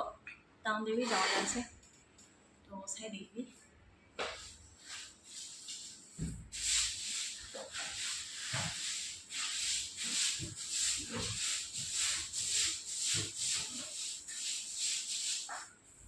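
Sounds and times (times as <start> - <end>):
broom sweeping floor: 1.0 - 1.7, 4.2 - 16.0
low thump: 6.2 - 6.5.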